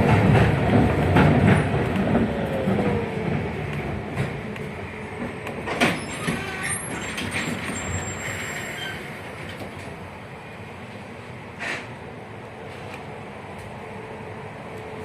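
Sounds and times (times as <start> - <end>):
tram rumbling on rails: 0.0 - 15.0
faint high wheel squeal: 5.8 - 9.2.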